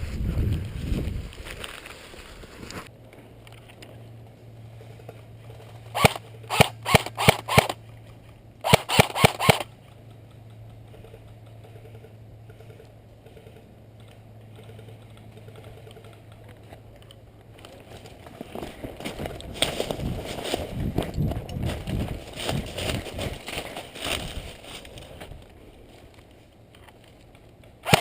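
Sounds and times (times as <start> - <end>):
airsoft gun firing single shots: 6.0 - 7.8, 8.6 - 9.7.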